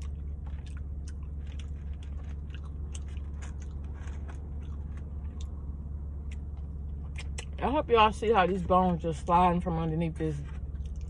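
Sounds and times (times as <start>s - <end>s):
chewing meat: 0.0s - 7.6s, 10.7s - 11.0s
low hum: 0.0s - 11.0s
mouth clicks and smacks: 6.2s - 7.6s.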